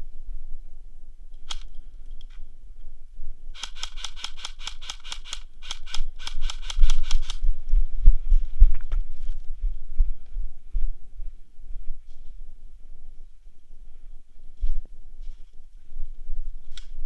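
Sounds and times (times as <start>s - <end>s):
low rumble: 6.8s - 16.6s.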